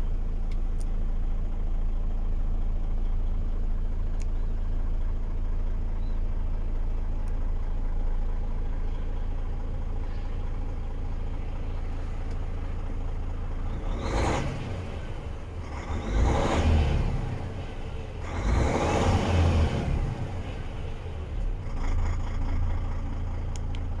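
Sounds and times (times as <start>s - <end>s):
diesel truck engine idling: 0.0s - 24.0s
engine revving: 11.6s - 23.7s.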